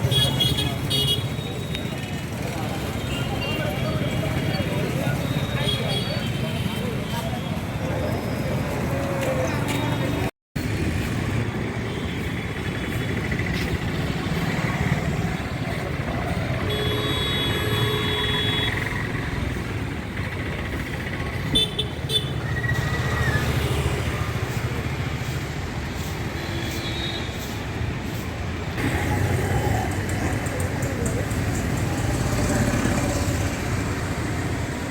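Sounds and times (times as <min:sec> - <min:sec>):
road traffic: 0:00.0 - 0:34.9
vehicle horns honking: 0:16.6 - 0:18.9.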